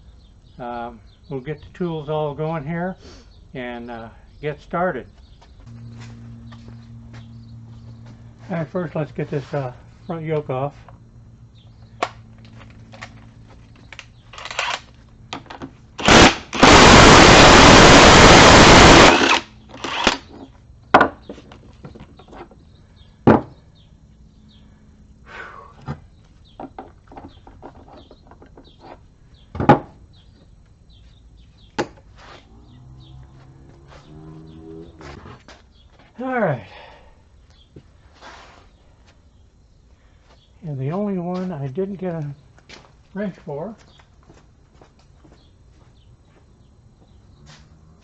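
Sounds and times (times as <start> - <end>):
impact wrench running: 16.0 - 20.3.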